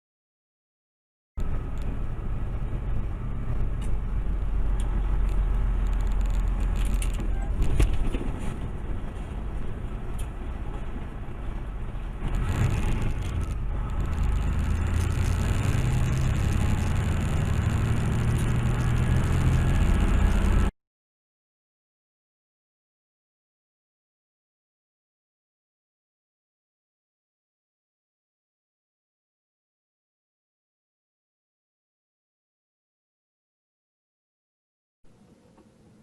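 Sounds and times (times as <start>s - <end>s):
car engine and road drone: 1.4s - 20.8s, 35.0s - 36.0s.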